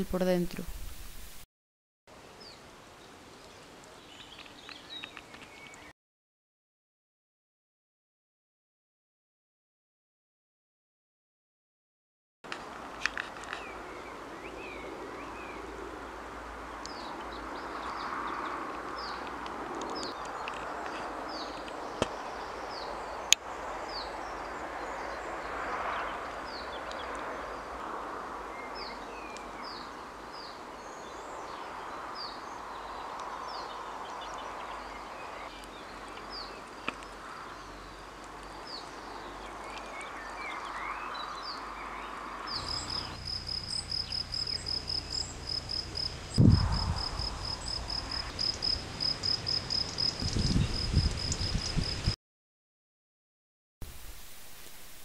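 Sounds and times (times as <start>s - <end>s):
background noise: 0.0s - 1.4s, 53.8s - 55.0s
bird chirps: 42.5s - 46.0s
cricket chirping: 42.5s - 52.2s
wind thump on microphone: 46.4s - 48.3s, 50.0s - 52.2s.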